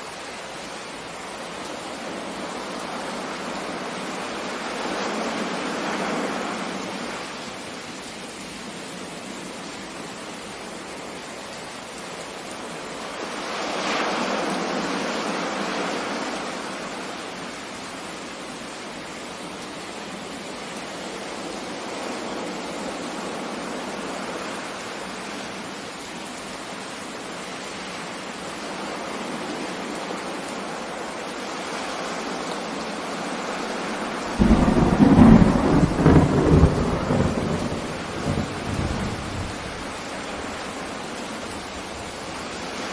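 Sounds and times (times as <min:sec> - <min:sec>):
steady rain: 0:00.0 - 0:42.9
thunderclap crackling and rumbling: 0:34.4 - 0:40.0.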